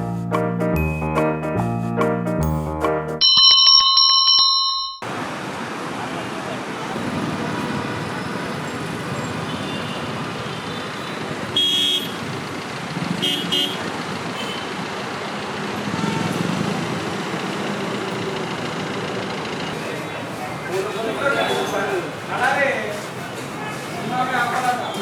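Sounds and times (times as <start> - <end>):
road traffic: 3.2 - 25.0
vehicle horn honking: 11.6 - 12.2, 13.2 - 13.8.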